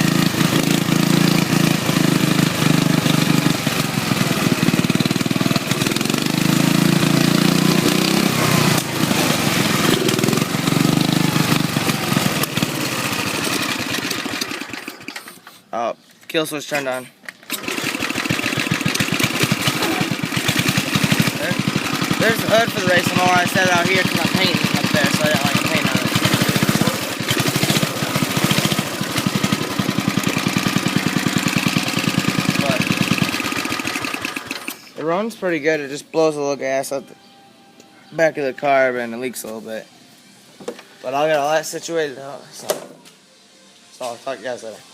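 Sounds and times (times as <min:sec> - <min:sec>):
lawn mower engine revving: 0:00.0 - 0:15.6, 0:17.4 - 0:35.3.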